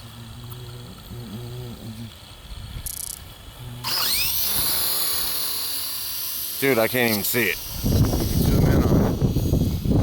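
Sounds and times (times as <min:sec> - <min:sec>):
electric motor whirring: 0:00.0 - 0:10.0.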